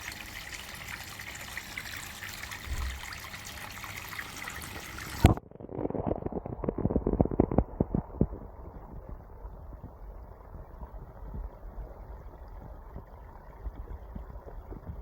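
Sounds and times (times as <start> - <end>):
water splashing into tank: 0.0 - 9.0.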